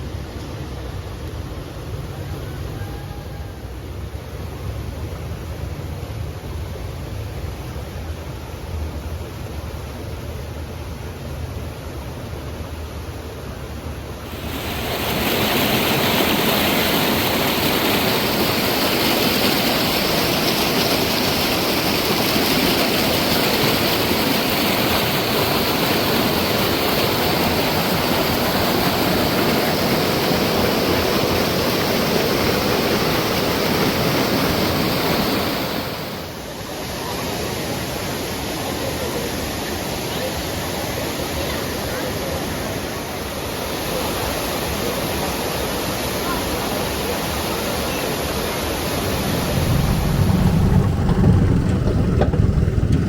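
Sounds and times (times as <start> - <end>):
waterfall rushing: 14.2 - 36.4, 48.8 - 53.0.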